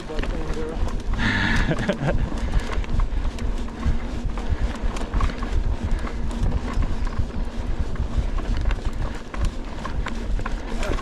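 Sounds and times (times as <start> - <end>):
bike rattling over bumps: 0.0 - 11.0
bike tyre noise: 0.0 - 11.0
wind rumble on microphone: 0.0 - 11.0.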